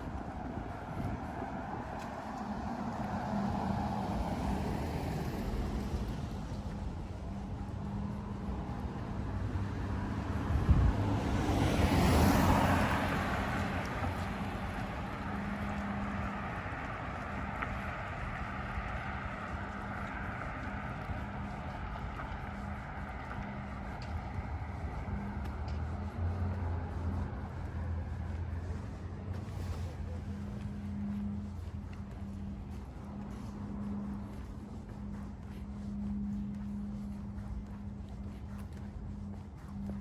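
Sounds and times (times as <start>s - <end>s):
road traffic: 0.0s - 40.0s
vehicle passing close by: 0.0s - 40.0s.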